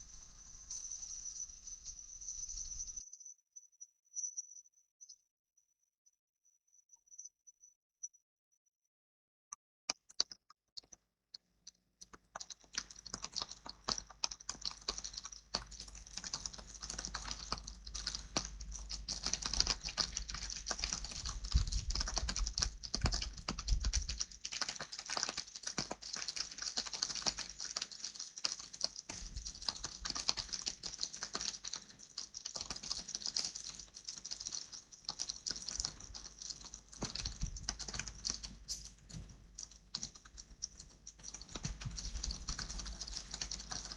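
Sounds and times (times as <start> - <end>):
rain pattering: 12.0 - 43.9.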